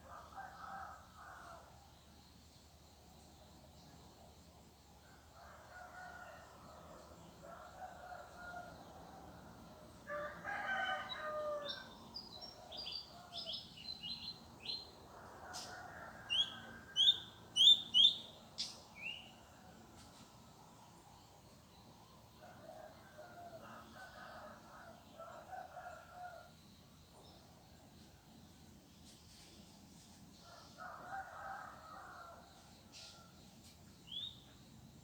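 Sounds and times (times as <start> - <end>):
roosters crowing: 10.1 - 11.9
sharp loud bird chirps: 16.3 - 19.2
small birds chirping: 16.4 - 19.3.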